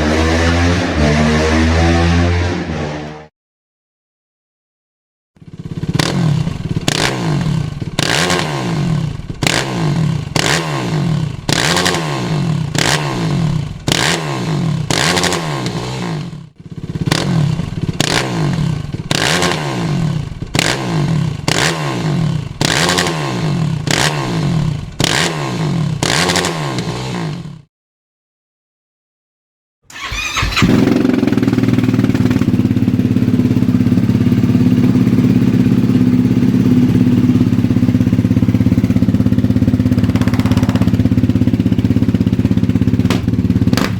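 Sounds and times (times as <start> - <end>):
quad engine throttle blips: 29.9 - 43.9.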